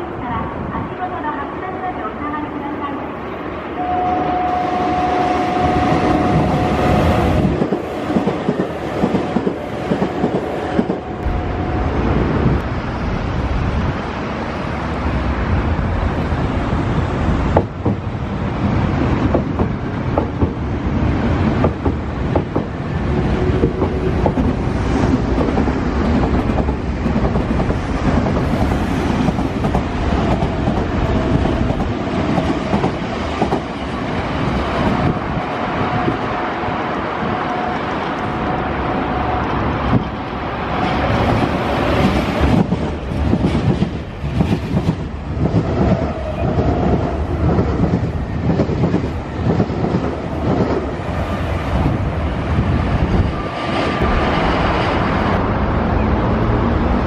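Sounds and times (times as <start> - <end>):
steady high whine: 11.0 - 13.8.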